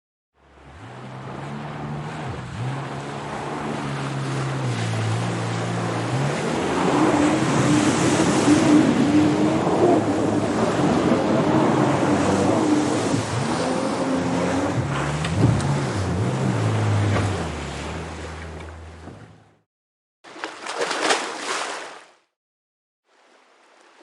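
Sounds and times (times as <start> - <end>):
rushing water: 0.4 - 19.1, 20.3 - 22.3, 23.0 - 24.0
wavering engine tone: 0.4 - 19.5.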